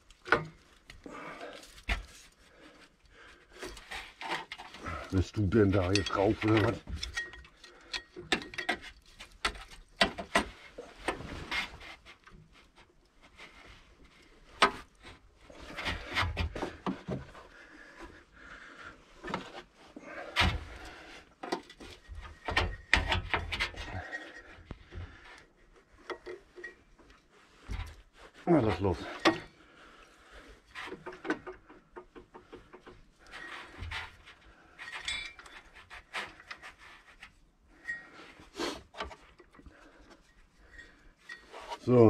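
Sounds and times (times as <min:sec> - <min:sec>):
metal engine parts clicking and scraping: 0:03.6 - 0:11.2, 0:30.6 - 0:37.1.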